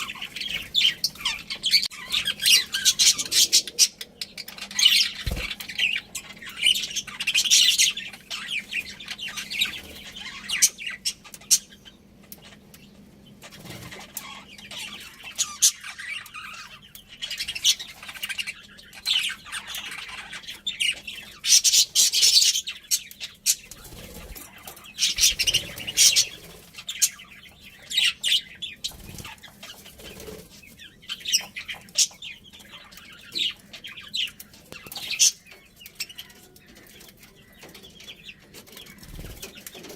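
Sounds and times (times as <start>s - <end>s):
budgerigars chirping and chattering: 0.0s - 39.9s
wings fluttering: 4.9s - 6.0s, 23.6s - 27.1s, 28.8s - 31.4s, 38.8s - 39.9s.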